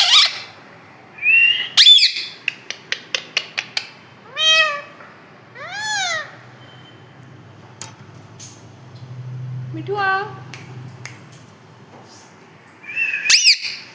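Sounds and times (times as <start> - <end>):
parrot harsh squawk: 0.0 - 0.6, 1.2 - 2.4, 4.2 - 5.0, 5.6 - 6.4, 12.8 - 13.9
parrot rising whistle: 12.8 - 13.8.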